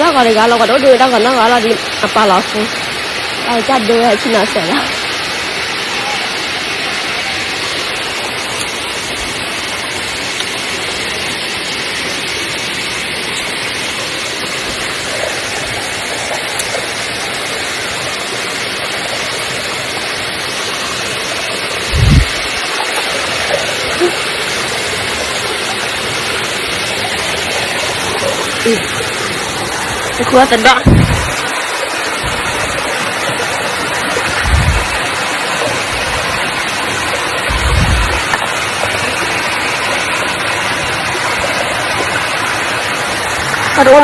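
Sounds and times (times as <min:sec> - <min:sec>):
waterfall rushing: 0:00.0 - 0:44.0
deep thump: 0:30.8 - 0:31.4, 0:34.4 - 0:35.0.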